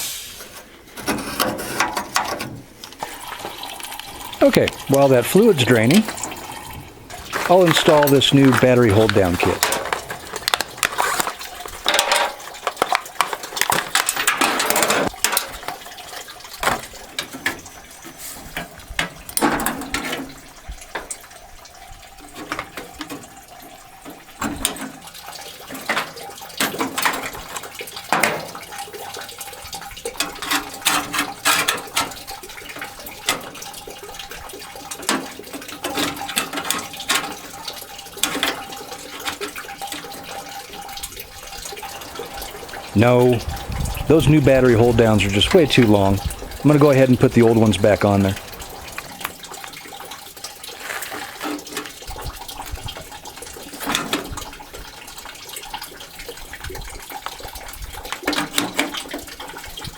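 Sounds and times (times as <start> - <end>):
coolant draining into bucket: 0.0 - 59.9
metal tools clinking: 7.3 - 15.1.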